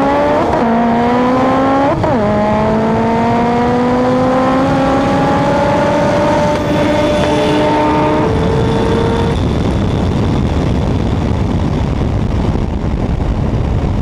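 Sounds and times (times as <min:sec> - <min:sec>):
car engine accelerating hard: 0:00.0 - 0:10.8
road noise rushing: 0:00.0 - 0:14.0.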